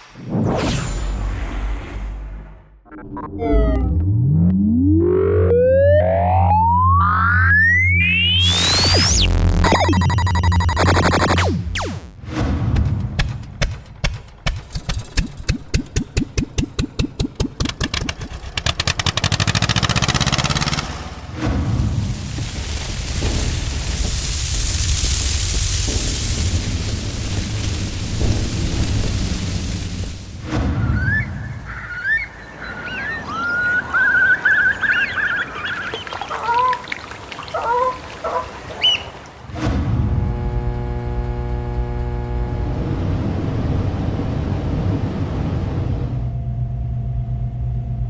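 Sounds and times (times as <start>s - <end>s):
old engine starting: 17.6s - 21.2s
birds whistling and trilling: 30.8s - 37.0s, 38.8s - 39.2s
waterfowl honking: 31.0s - 39.3s.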